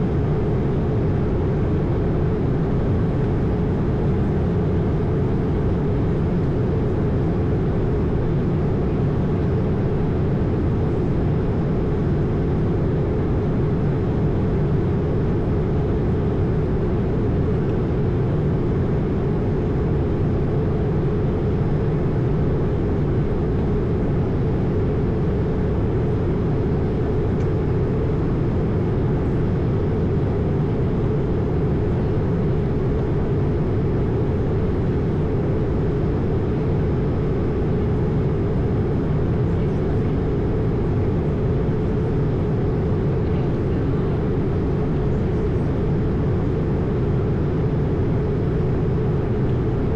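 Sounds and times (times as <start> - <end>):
airflow rush in aircraft cabin: 0.0 - 49.9
jet engines droning: 0.0 - 49.9.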